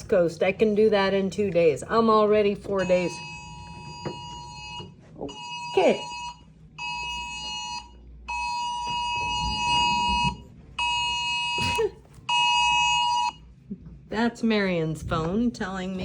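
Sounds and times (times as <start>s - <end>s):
two-tone emergency alert beep: 2.7s - 11.6s, 12.3s - 13.4s.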